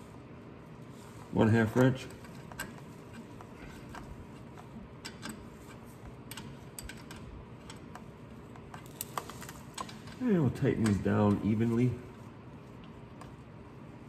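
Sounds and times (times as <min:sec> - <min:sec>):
wrench clicking on bolts: 0:05.0 - 0:11.4.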